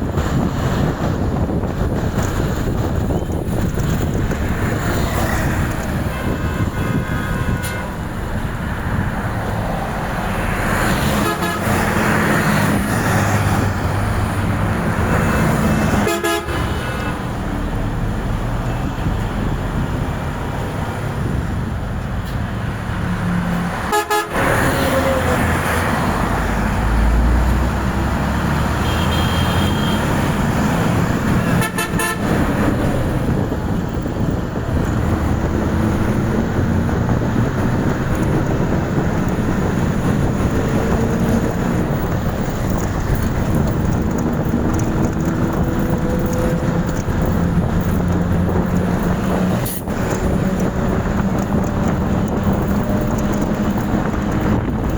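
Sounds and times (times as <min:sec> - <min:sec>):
road traffic: 0:00.0 - 0:54.9
vehicle horns honking: 0:04.9 - 0:08.2, 0:10.9 - 0:12.1, 0:15.1 - 0:17.3, 0:23.8 - 0:24.8, 0:28.7 - 0:30.4, 0:31.2 - 0:32.7.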